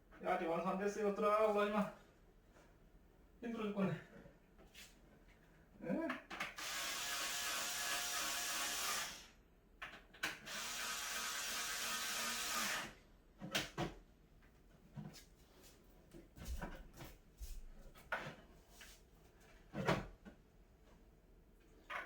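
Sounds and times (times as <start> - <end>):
electric screwdriver running: 6.6 - 9.3, 10.4 - 13.0.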